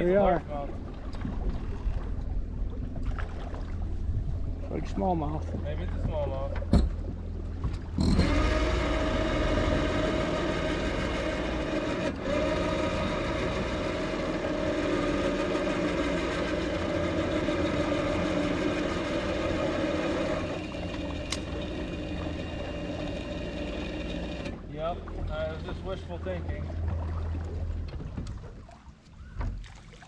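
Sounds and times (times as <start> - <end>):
electric motor whine: 8.0 - 24.6.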